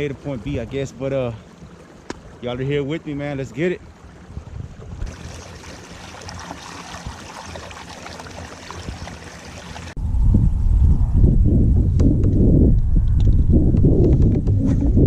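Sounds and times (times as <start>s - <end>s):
water rushing along kayak hull: 0.0s - 10.0s
loud low rumble: 10.0s - 13.8s.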